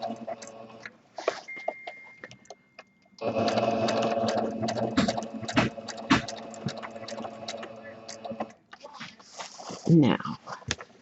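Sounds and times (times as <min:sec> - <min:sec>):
sewing machine stitching: 0:00.0 - 0:00.9, 0:03.2 - 0:08.6.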